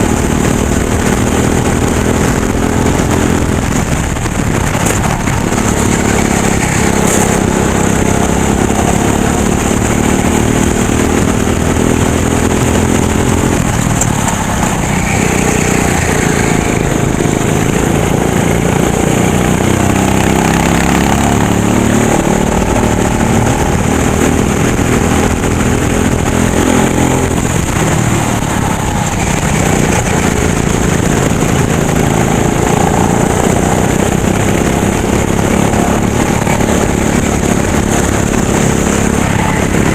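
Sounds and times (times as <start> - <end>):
racing kart engine running hard: 0.0 - 39.9.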